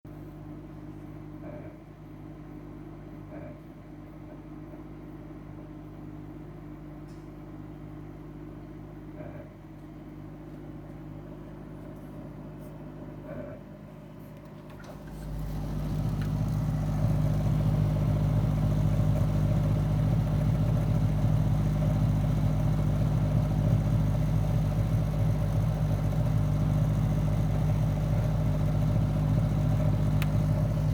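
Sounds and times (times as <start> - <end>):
freezer humming: 14.4 - 30.9.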